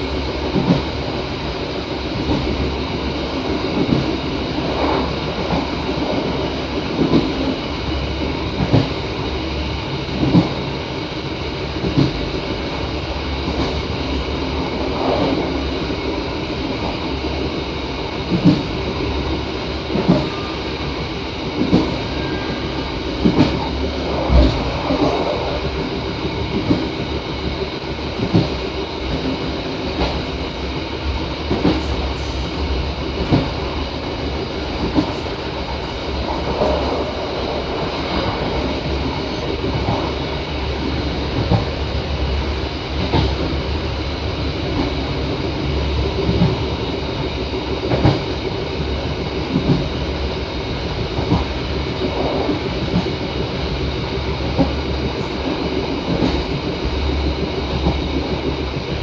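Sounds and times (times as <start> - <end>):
train rumbling along track: 0.0 - 59.0
train wheel knocks: 0.4 - 0.9, 8.6 - 9.0, 10.1 - 10.6, 11.8 - 12.2, 18.3 - 18.8, 19.9 - 20.4, 21.6 - 22.0, 23.2 - 25.2, 26.4 - 27.0, 28.2 - 30.3, 31.5 - 32.0, 33.2 - 33.6, 34.8 - 35.3, 40.9 - 41.8, 43.0 - 43.6, 46.0 - 46.7, 47.8 - 48.4, 49.4 - 49.9, 51.1 - 53.2, 54.4 - 58.9.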